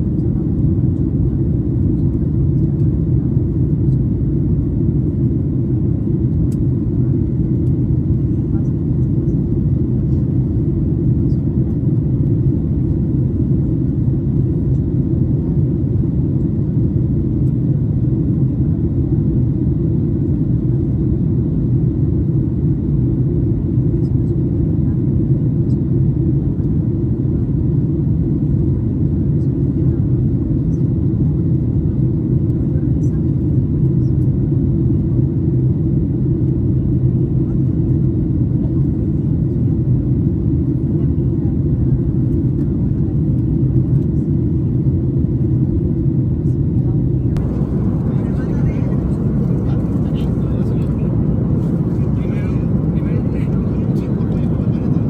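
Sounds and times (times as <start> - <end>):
airplane cabin engine drone: 0.0 - 55.0
airplane cabin rumble: 45.3 - 55.0.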